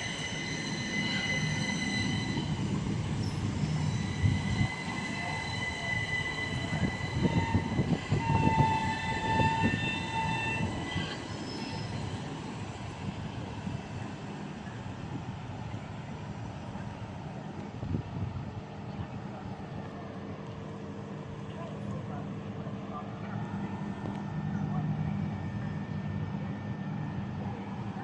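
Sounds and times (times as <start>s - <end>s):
high squealing wheels: 0.0s - 12.9s
train wheels rumbling on rail: 0.0s - 28.0s.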